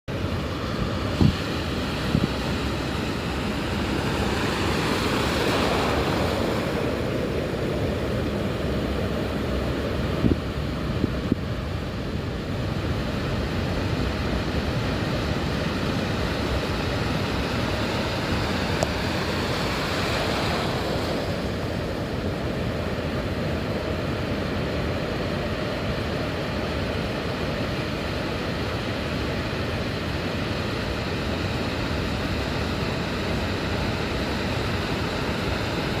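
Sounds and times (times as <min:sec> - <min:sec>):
surf washing: 0:00.1 - 0:36.0
wind buffeting microphone: 0:00.2 - 0:24.7.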